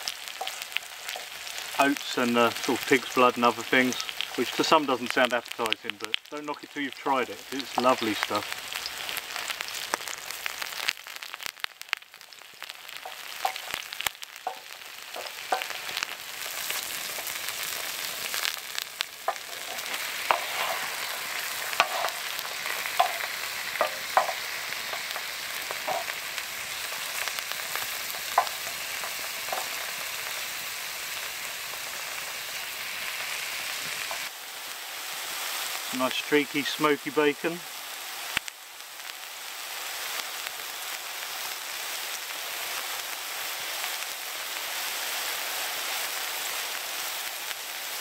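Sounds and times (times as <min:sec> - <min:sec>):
food sizzling on a griddle: 0:00.0 - 0:48.0
wooden spatula scraping and tapping: 0:13.0 - 0:17.3, 0:19.2 - 0:26.2, 0:27.2 - 0:29.8.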